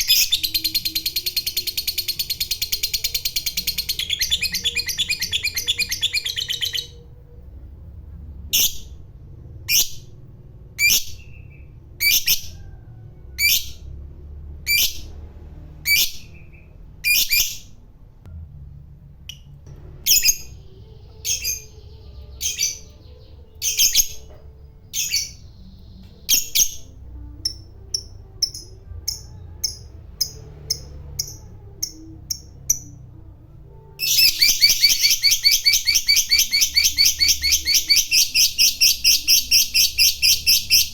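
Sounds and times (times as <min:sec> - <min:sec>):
lovebird calls and chirps: 0:00.0 - 0:07.0, 0:20.0 - 0:32.9, 0:34.0 - 0:40.9.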